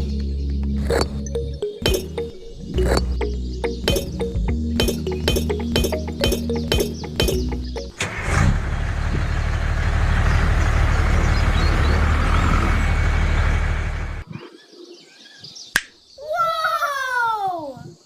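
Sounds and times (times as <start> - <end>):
music: 0.0 - 8.0
vehicle engine rumbling: 0.0 - 14.2.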